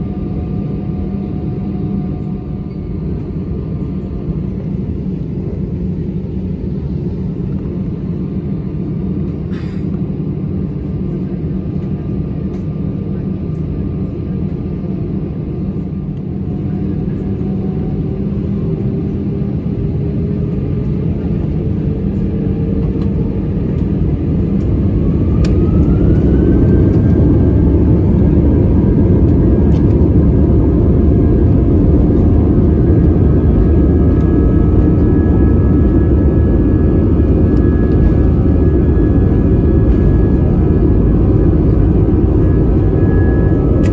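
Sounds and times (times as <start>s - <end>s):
jet engines spooling up: 22.9s - 43.9s.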